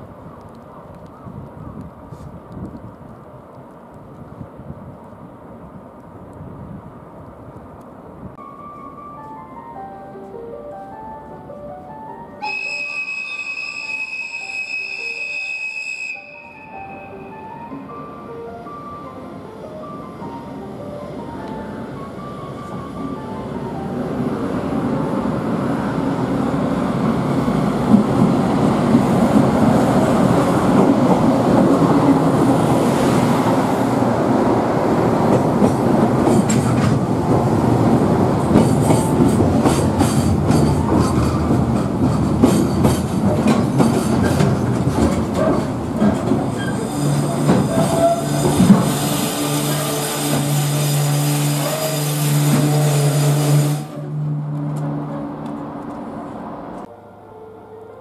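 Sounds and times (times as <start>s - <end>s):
freight train rumbling: 0.0s - 56.9s
wheels clicking over rail joints: 35.2s - 37.5s, 38.4s - 49.1s.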